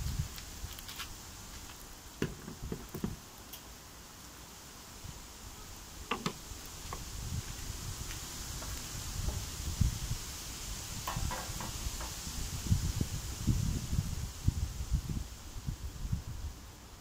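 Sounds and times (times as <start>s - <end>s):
pops and soft knocks: 2.2s - 3.2s
meat sizzling in a pot: 4.0s - 15.7s.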